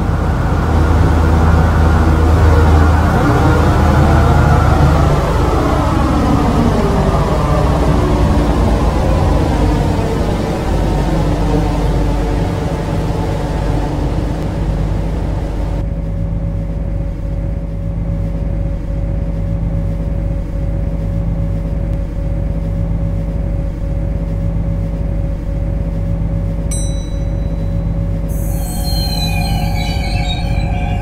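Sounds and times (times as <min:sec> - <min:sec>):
constant whine: 0:00.0 - 0:31.0
train rumble and hum: 0:00.0 - 0:31.0
faint high squealing tones: 0:26.7 - 0:31.0.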